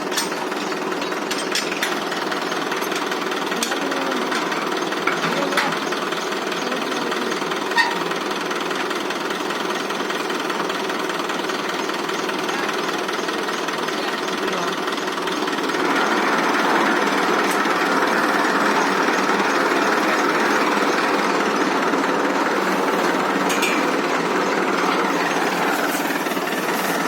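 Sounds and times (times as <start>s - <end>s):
sharp metallic clanks: 0.0s - 5.9s, 22.5s - 24.2s
tractor diesel engine clattering: 0.0s - 27.0s.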